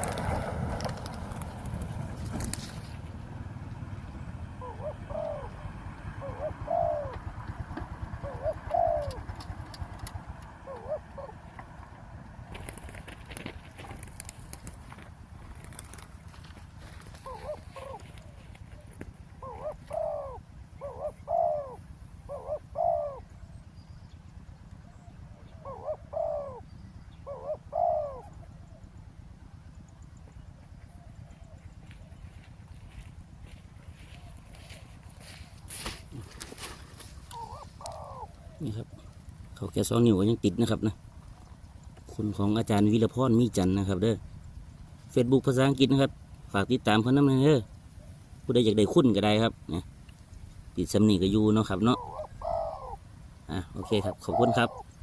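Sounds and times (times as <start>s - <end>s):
dove cooing: 3.8s - 23.7s, 24.8s - 29.0s, 30.6s - 33.1s, 33.9s - 44.4s, 50.9s - 55.0s.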